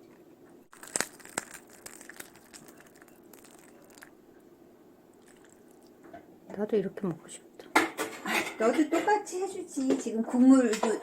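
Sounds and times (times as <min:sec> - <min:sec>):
crinkling: 0:00.7 - 0:04.2.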